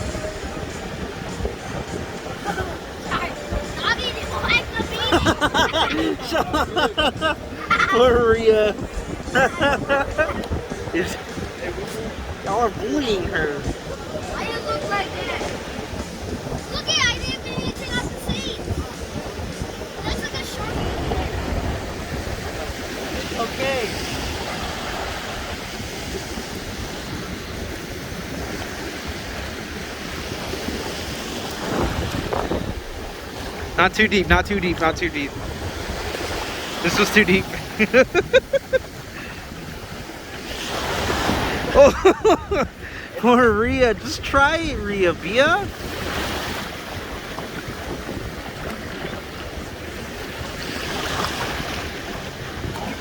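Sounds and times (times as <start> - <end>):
ocean surf washing: 0.0 - 53.0
wind buffeting microphone: 0.0 - 53.0.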